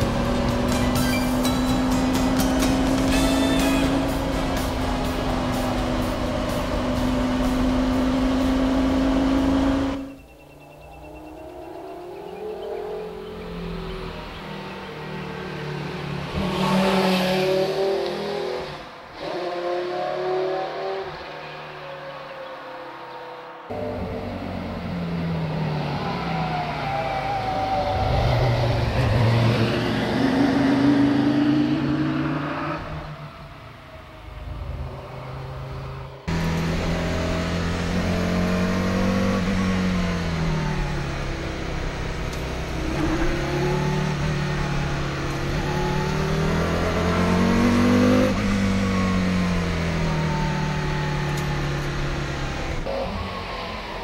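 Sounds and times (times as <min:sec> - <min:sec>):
car engine revving: 0:00.0 - 0:10.3, 0:23.7 - 0:54.0.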